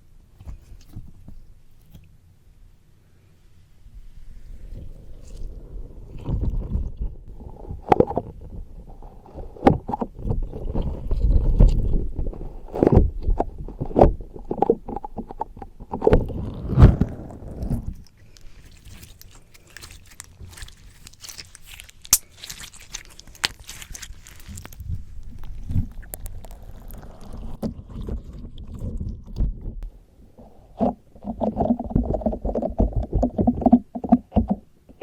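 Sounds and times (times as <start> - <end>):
slime squelching on microphone: 4.3 - 34.5
slime fine crackling: 16.2 - 27.6.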